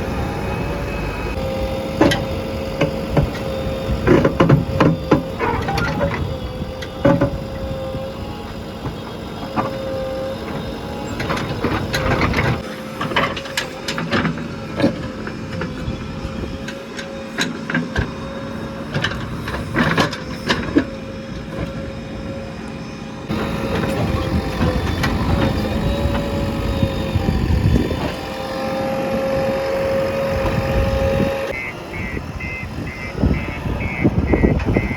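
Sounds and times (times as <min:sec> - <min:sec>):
diesel engine running with whine: 0:00.0 - 0:34.9
metal clanks and knocks: 0:11.2 - 0:21.9.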